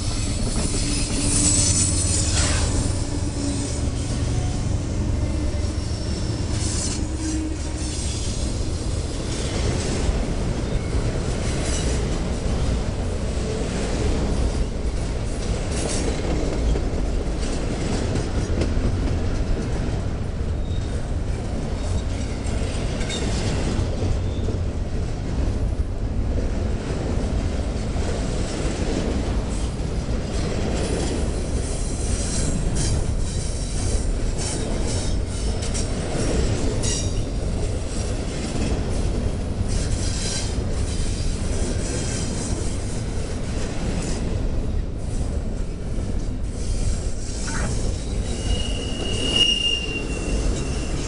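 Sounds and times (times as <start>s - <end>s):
high-pitched wheel squeal: 0.0s - 8.5s, 47.3s - 51.0s
freight train wheels rumbling: 0.0s - 51.0s.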